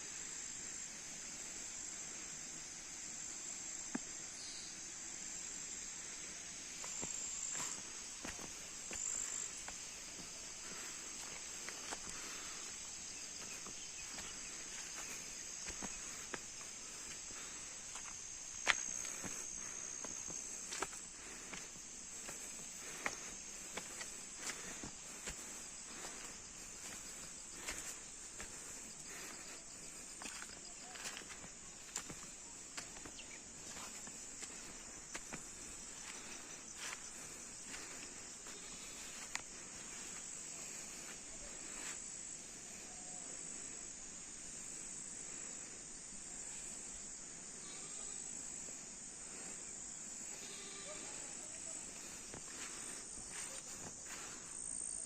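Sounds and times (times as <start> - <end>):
crickets shrilling: 3.1 - 55.0.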